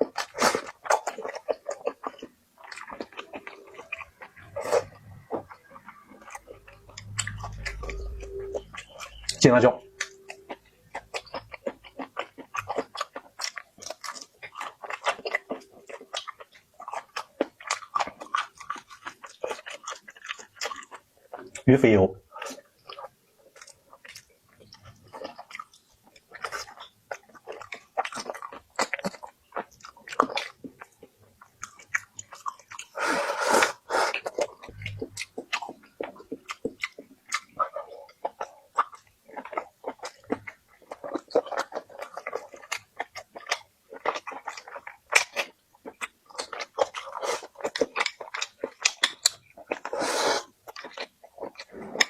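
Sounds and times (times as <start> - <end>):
person chewing food: 0.0 - 52.0.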